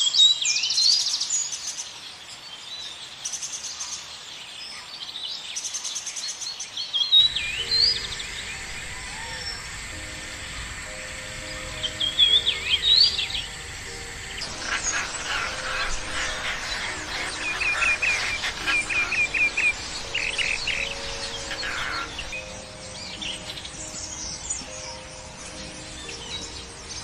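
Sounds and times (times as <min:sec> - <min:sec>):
songbirds chirping and singing: 0:00.0 - 0:27.0
soft background music: 0:07.2 - 0:27.0.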